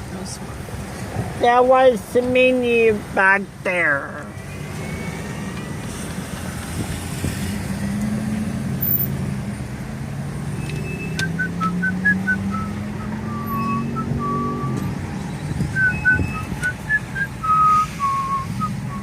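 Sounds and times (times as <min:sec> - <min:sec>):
car engine humming: 0:00.0 - 0:19.0
person whistling a tune: 0:11.2 - 0:14.8, 0:15.7 - 0:19.0.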